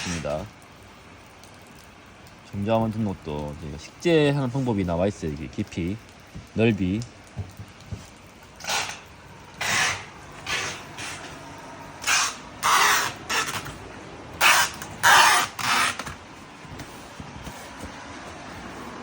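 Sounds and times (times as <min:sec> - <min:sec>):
packing tape pulled off roll: 0:08.6 - 0:11.3, 0:12.0 - 0:13.8, 0:14.4 - 0:19.0.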